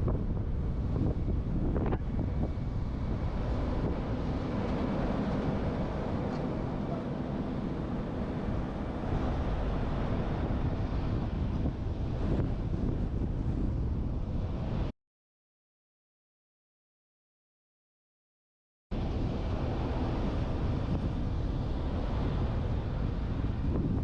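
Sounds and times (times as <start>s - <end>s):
road and tyre rumble: 0.0s - 14.7s
wind buffeting microphone: 0.0s - 14.9s, 18.9s - 24.0s.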